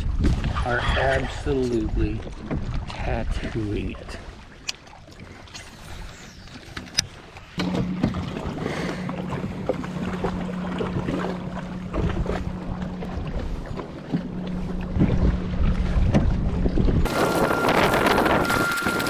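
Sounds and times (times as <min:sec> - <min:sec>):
water noise: 0:00.0 - 0:19.0
electric motor humming: 0:17.1 - 0:19.0.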